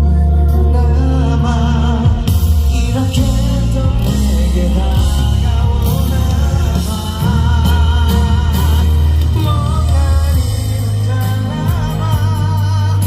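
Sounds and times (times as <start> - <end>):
live band ballad through pa: 0.0 - 13.0.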